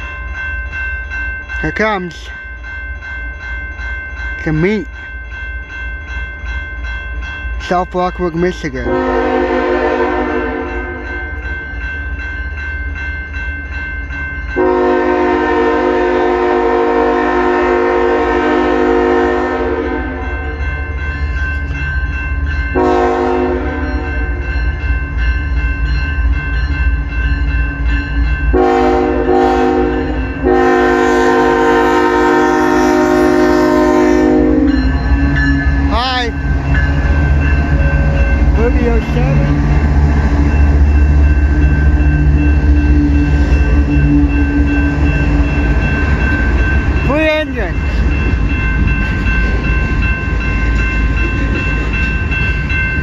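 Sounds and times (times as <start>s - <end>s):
passing train rumble: 0.0s - 53.0s
locomotive air horn blasts: 8.9s - 11.0s, 14.6s - 20.2s, 22.8s - 24.1s, 28.6s - 34.7s.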